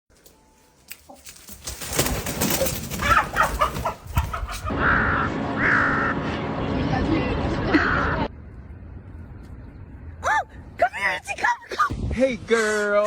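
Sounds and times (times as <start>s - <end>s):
crow clucking and cawing: 2.6s - 5.0s.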